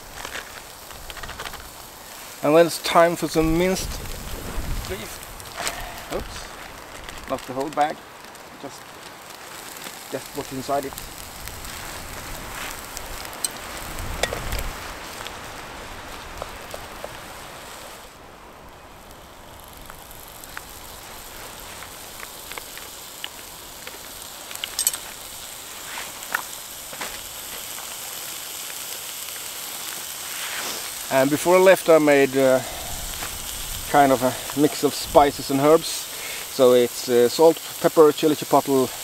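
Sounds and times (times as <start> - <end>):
pops and crackles: 0.0 - 18.2, 18.9 - 39.0
meat sizzling in a frying pan: 0.0 - 39.0.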